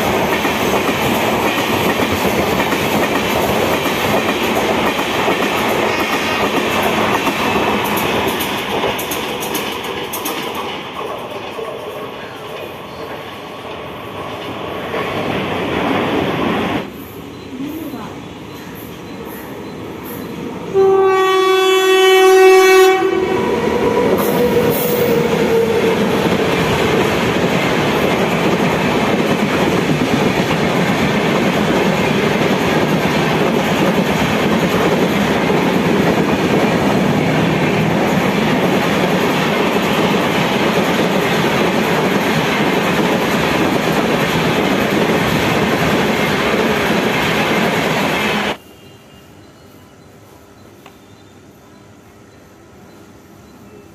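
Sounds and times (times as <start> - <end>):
train rumble and wheel clatter: 0.0 - 53.9
train horn blast: 20.7 - 23.4.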